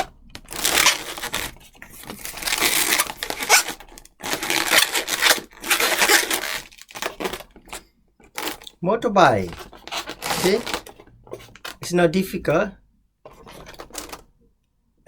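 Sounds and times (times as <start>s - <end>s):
latex balloons rubbing: 9.5s - 11.6s.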